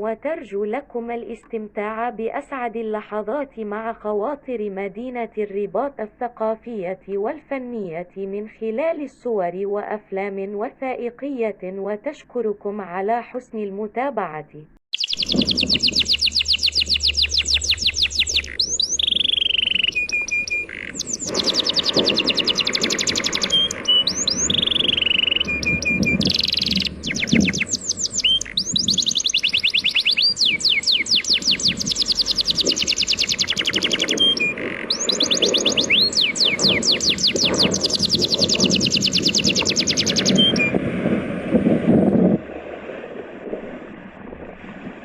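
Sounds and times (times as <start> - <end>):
songbird trilling and whistling: 14.9 - 40.8
sea waves rushing: 19.9 - 45.0.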